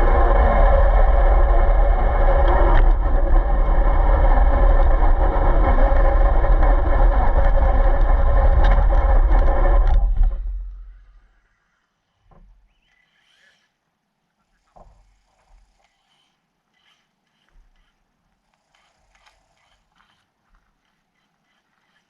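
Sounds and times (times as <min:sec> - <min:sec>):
radio-controlled car motor: 0:14.6 - 0:22.0.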